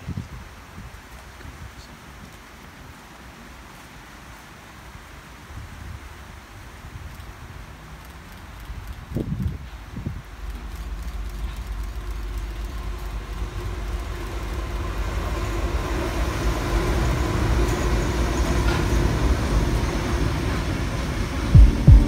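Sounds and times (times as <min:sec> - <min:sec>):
freight train passing: 0:09.6 - 0:22.0.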